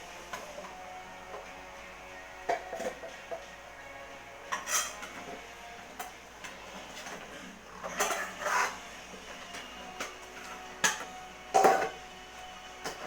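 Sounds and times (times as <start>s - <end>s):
hard objects clattering: 6.0s - 8.8s.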